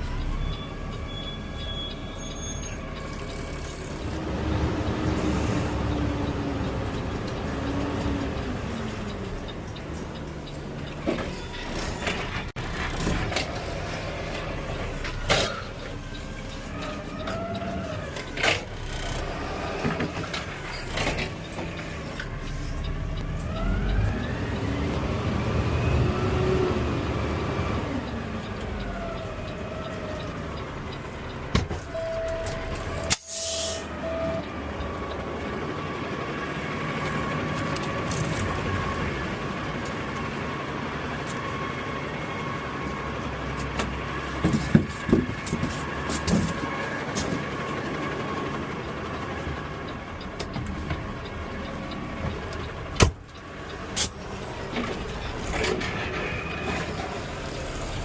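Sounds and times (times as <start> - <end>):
air hiss: 33.2 - 33.8.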